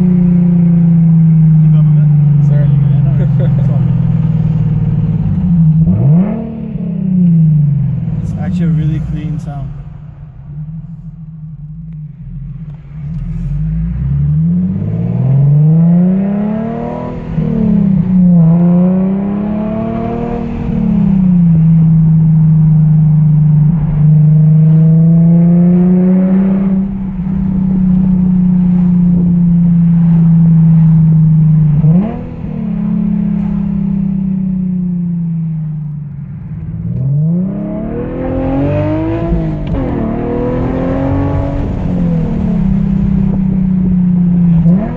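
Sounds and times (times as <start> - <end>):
car exhaust revving: 0.0 - 44.9.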